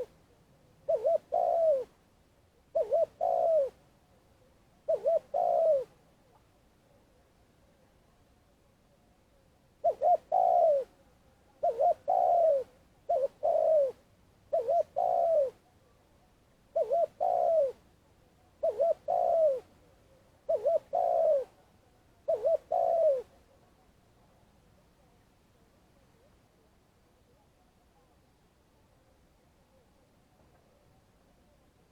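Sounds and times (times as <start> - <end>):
dove cooing: 0.8 - 2.0, 2.7 - 3.8, 4.8 - 6.0, 9.8 - 11.0, 11.6 - 15.7, 16.7 - 17.8, 18.6 - 19.7, 20.5 - 21.6, 22.3 - 23.4.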